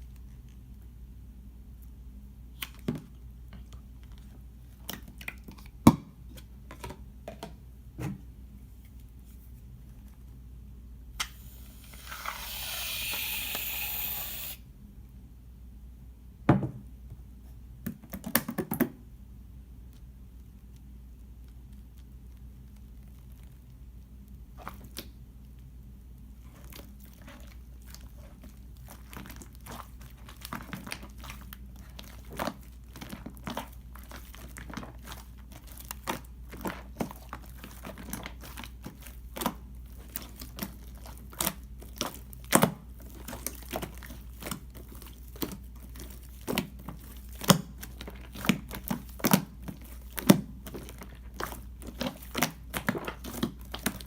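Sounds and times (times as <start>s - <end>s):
low steady hum: 0.0s - 18.1s
slime squishing with sticky clicks: 19.8s - 54.0s.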